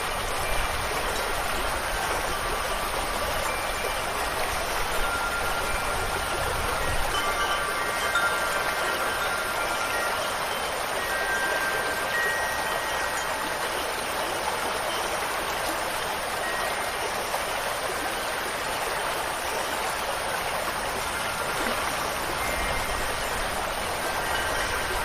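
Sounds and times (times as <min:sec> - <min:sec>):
flowing water rushing: 0:00.0 - 0:25.0
faint high chime tones: 0:03.4 - 0:15.4, 0:16.0 - 0:17.4, 0:21.0 - 0:25.0.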